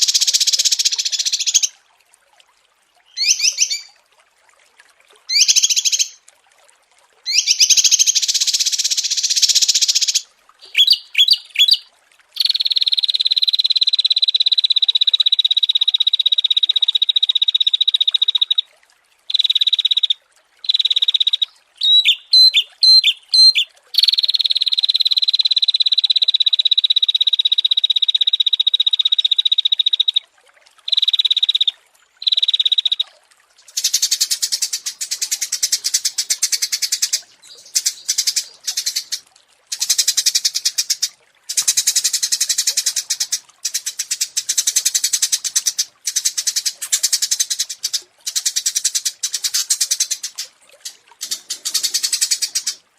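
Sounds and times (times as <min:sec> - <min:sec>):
songbirds trilling: 0:03.1 - 0:03.9, 0:09.3 - 0:11.8, 0:20.6 - 0:24.1, 0:33.7 - 0:41.8
buzzy bird phrases: 0:21.8 - 0:24.1.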